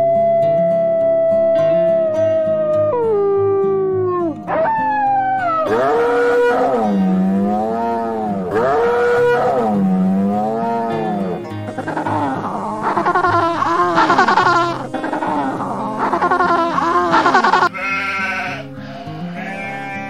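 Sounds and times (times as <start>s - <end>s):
background music with low pulse: 0.0s - 20.0s
wolf howling: 0.0s - 20.0s
cow mooing: 5.7s - 11.4s, 17.0s - 20.0s.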